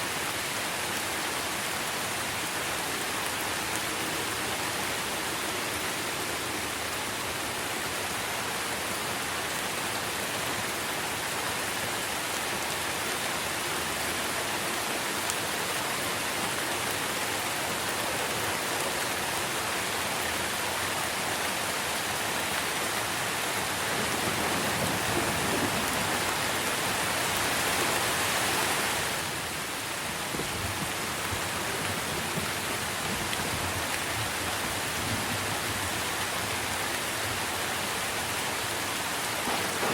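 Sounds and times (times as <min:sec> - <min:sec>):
rain falling on trees: 0:00.0 - 0:39.9.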